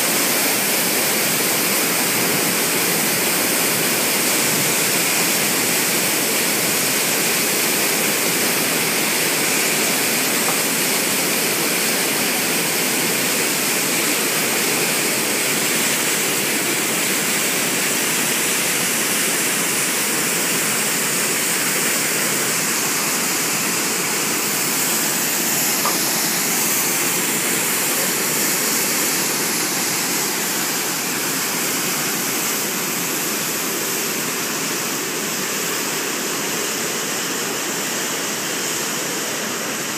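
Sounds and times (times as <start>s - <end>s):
water rushing from dam: 0.0s - 39.9s.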